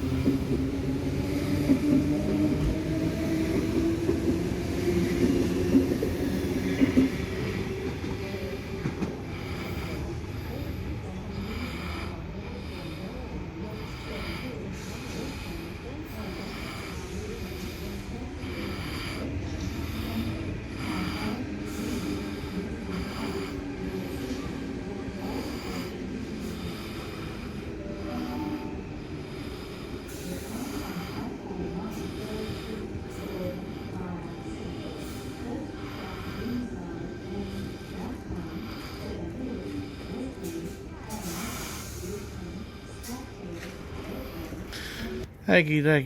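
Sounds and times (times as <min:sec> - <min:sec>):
train rumble: 0:00.0 - 0:45.4.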